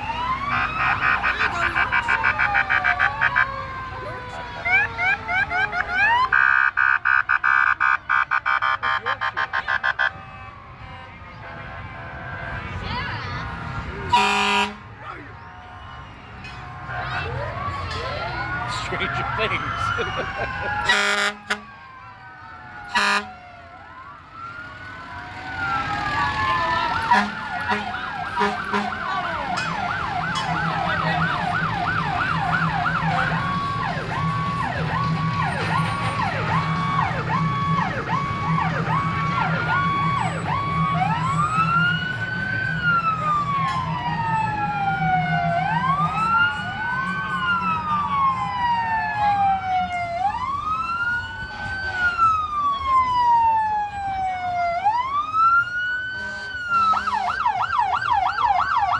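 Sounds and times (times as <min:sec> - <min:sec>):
fire truck sirens: 0:00.0 - 0:58.9
truck engines humming: 0:00.0 - 0:58.9
horn blasts: 0:14.0 - 0:16.2, 0:20.8 - 0:21.8, 0:22.9 - 0:23.4, 0:27.0 - 0:29.8, 0:56.2 - 0:57.4.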